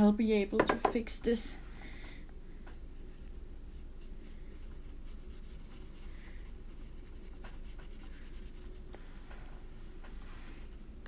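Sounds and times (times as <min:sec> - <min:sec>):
steady low hum: 0:00.0 - 0:11.0
paintbrush strokes on paper: 0:03.0 - 0:10.8.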